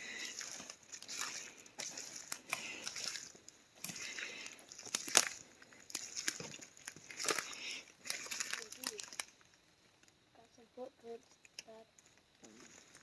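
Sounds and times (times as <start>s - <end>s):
footsteps crunching through dry leaves: 0.0s - 9.4s.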